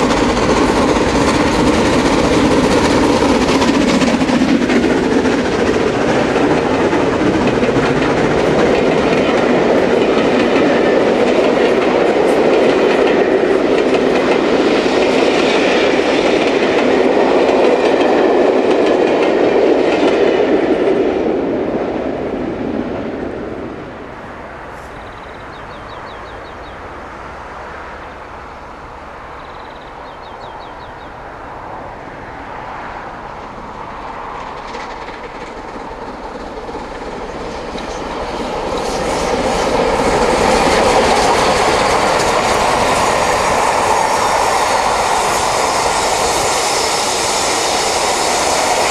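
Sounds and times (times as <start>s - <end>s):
train passing at speed: 0.0s - 48.9s.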